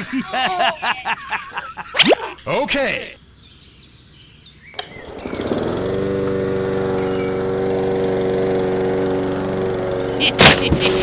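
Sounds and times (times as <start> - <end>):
small tractor engine running: 4.8 - 11.0.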